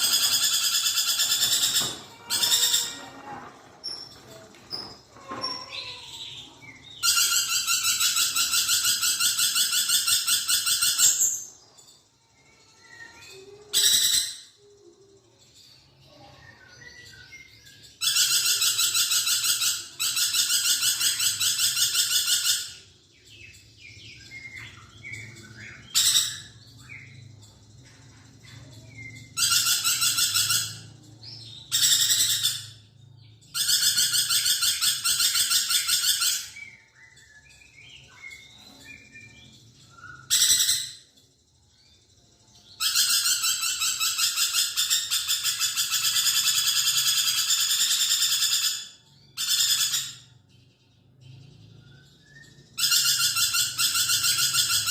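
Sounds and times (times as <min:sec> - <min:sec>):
lorikeet rasping trills: 0:12.6 - 0:14.6, 0:28.7 - 0:32.8, 0:33.5 - 0:37.2, 0:37.8 - 0:41.1, 0:42.6 - 0:50.2, 0:51.8 - 0:54.9.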